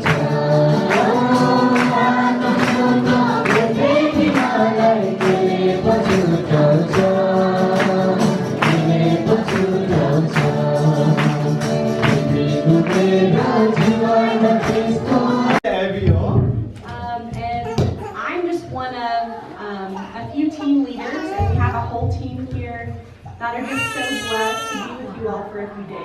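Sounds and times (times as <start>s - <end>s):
congregation singing: 0.0s - 16.7s
steady percussion beat: 0.0s - 16.8s.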